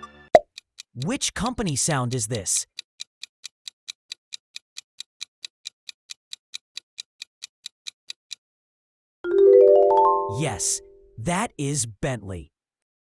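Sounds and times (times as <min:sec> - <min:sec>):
clock-like timer ticking: 0:00.4 - 0:08.4.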